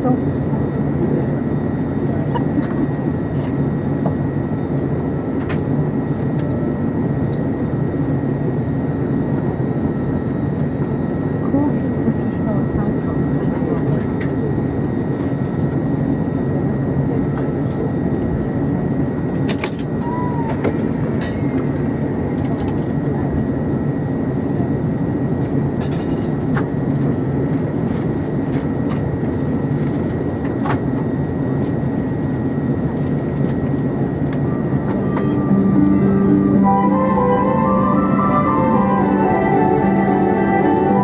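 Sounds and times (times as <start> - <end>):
passenger chatter: 0.0 - 41.0.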